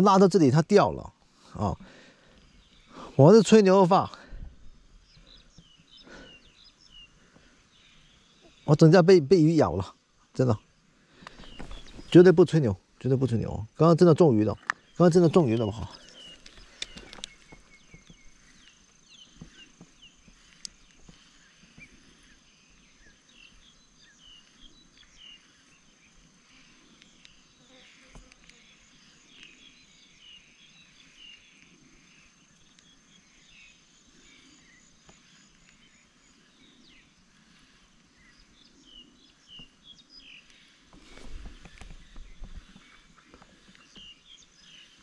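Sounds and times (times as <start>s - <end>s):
bird chirps: 0.0s - 45.0s
rustling noises: 11.2s - 12.3s, 40.4s - 44.2s.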